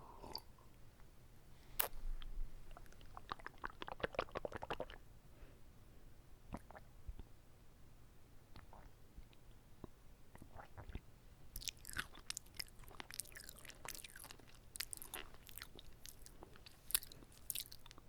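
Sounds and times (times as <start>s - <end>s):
wet chewing mouth clicks: 2.7s - 5.0s, 11.6s - 18.0s.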